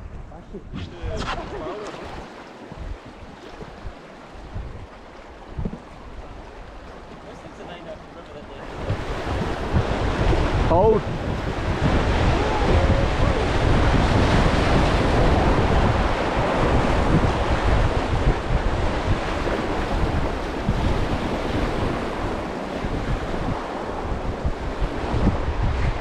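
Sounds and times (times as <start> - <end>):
wind buffeting microphone: 0.0 - 26.0
whitewater rushing: 1.3 - 16.5.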